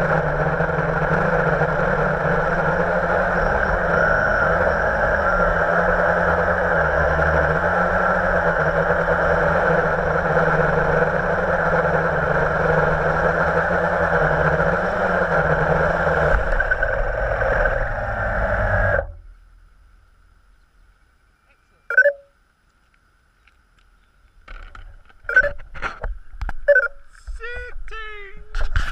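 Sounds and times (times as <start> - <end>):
quadcopter propellers buzzing: 0.0 - 19.1.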